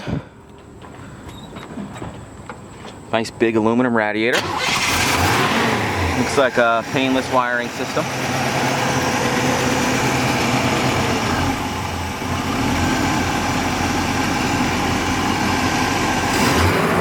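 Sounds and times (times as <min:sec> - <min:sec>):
pickup truck engine idling: 0:04.5 - 0:17.0.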